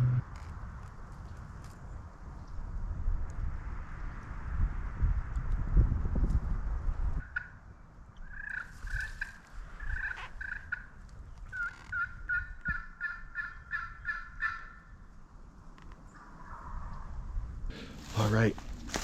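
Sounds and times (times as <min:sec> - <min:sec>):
low rumble: 0:00.0 - 0:00.4
wild turkey yelps: 0:08.2 - 0:10.8, 0:11.5 - 0:14.8.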